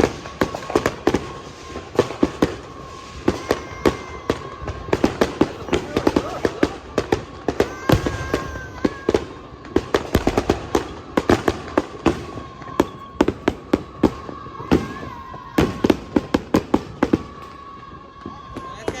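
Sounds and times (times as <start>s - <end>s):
fireworks bangs and crackles: 0.0s - 19.0s
faint steady whistle: 10.3s - 19.0s.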